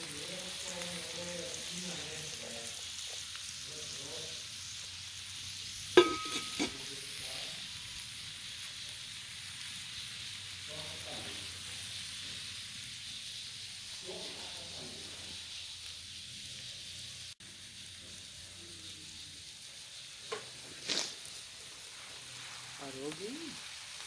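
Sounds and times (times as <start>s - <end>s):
steady hissing: 0.0s - 24.0s
ringing metal clank: 6.0s - 6.8s.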